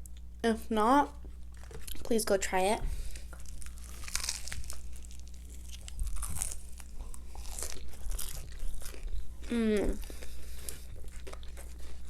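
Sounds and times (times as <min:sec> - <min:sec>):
chewing: 0:03.1 - 0:12.0
crunchy bites into fried chicken: 0:03.4 - 0:09.2.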